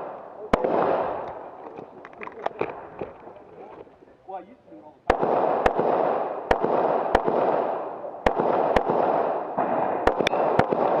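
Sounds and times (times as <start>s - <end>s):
handgun shots in pairs: 5.1s - 11.0s.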